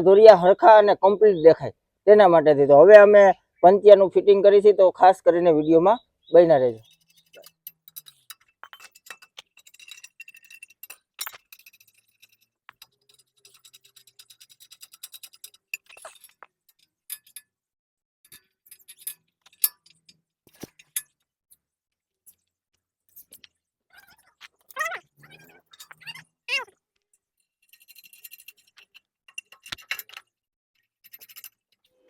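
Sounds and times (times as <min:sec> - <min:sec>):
metal tines and spanner clinking: 0:06.8 - 0:17.6, 0:18.3 - 0:21.6, 0:24.5 - 0:26.2, 0:27.4 - 0:32.0.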